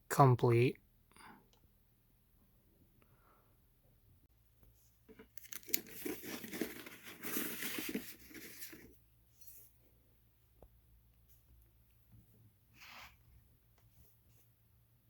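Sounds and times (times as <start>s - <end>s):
crinkling and rustling: 4.7s - 9.7s.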